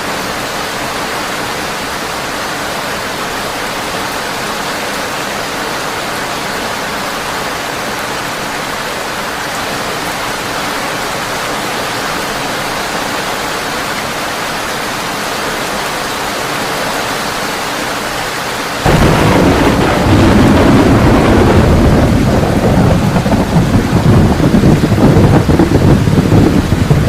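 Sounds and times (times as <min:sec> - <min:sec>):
heavy rain on a tin roof: 0:00.0 - 0:27.0
deep thunder rumble: 0:18.8 - 0:27.0.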